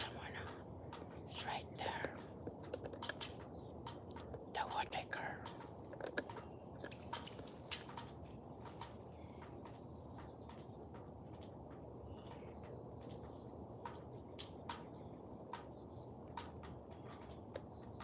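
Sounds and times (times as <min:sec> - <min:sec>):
faint bird chirps: 0:00.0 - 0:07.9, 0:08.8 - 0:10.7
light clicks: 0:00.0 - 0:11.6
low background hum: 0:00.0 - 0:18.0.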